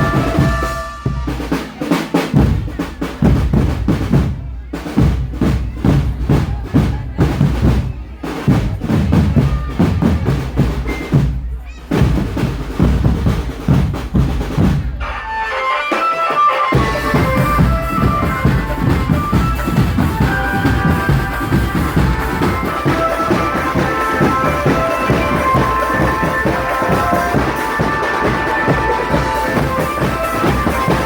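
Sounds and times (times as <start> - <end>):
pitched melody line: 0.0 - 1.5, 15.0 - 31.0
snare drums and bass drums: 0.0 - 31.0.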